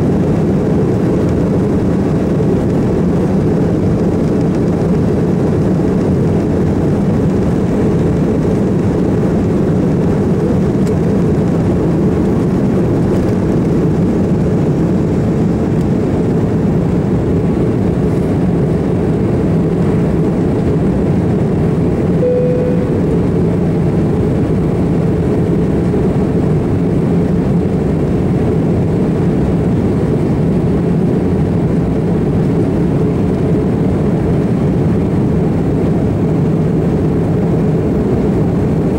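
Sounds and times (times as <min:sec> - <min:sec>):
jet engines rumbling: 0:00.0 - 0:38.9
short single tone: 0:22.2 - 0:23.8.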